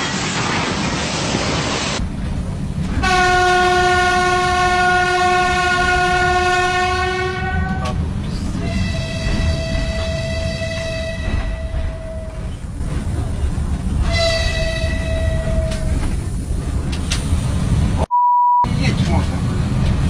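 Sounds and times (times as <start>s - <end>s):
train rumbling: 0.0s - 18.1s, 18.7s - 20.0s
locomotive air horn: 3.0s - 7.9s, 8.7s - 12.2s.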